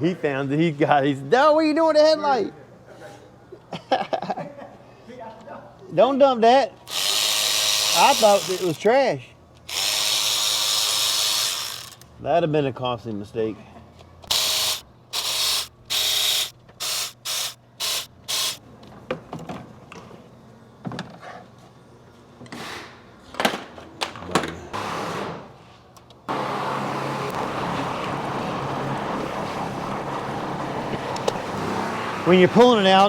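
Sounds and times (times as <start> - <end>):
powered ratchet whirring: 6.9 - 8.8, 9.6 - 12.1, 14.2 - 18.6.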